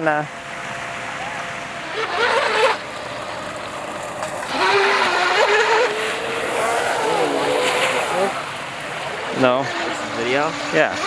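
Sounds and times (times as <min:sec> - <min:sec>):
boat motor whine: 0:00.0 - 0:11.0.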